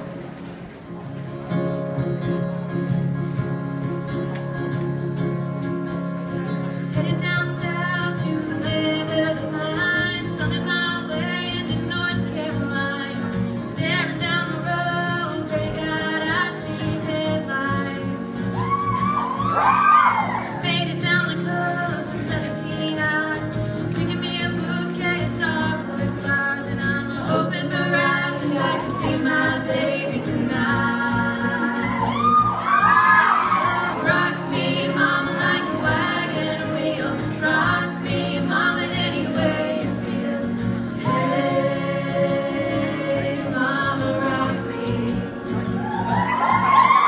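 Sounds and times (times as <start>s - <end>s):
female a cappella group singing: 7.0s - 18.3s, 20.6s - 32.6s, 33.3s - 45.9s.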